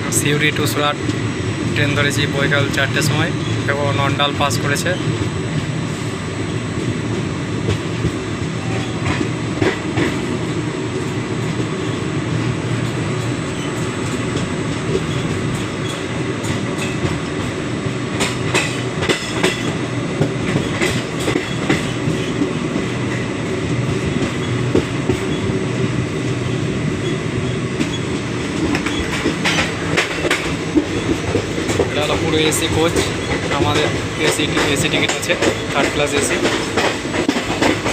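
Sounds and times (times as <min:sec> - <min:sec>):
train wheels rumbling on rails: 0:00.0 - 0:37.9
sharp clicks and rattles: 0:27.8 - 0:37.9.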